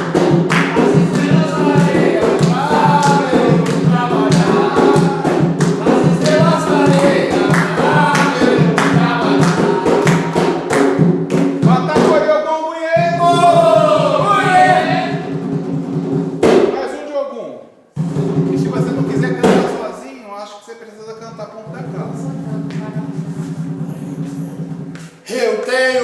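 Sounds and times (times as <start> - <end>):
group of voices chanting: 0.0 - 10.8, 13.1 - 15.3
steady drumbeat: 0.0 - 17.0, 17.9 - 20.0, 21.1 - 26.0.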